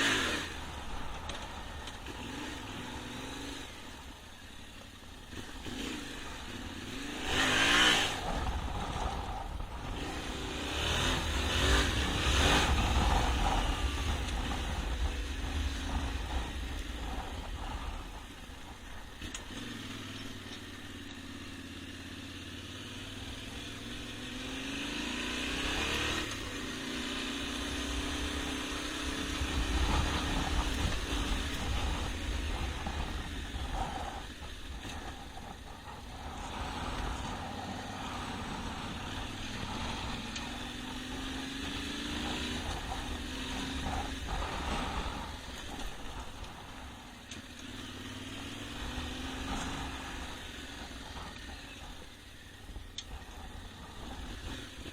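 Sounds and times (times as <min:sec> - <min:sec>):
motorcycle engine revving: 0:00.0 - 0:54.9
wind noise: 0:06.8 - 0:20.1, 0:23.4 - 0:48.0.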